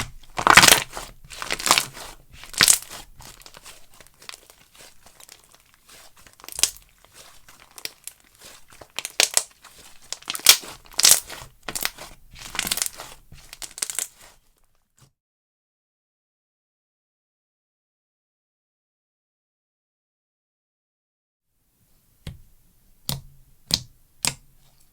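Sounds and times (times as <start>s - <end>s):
slime squishing and popping: 0.0s - 14.3s.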